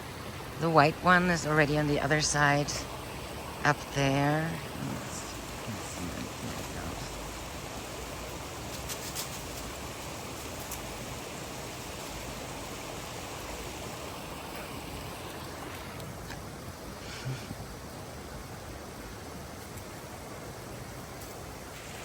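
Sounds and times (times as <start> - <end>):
river flowing: 0.0 - 22.0.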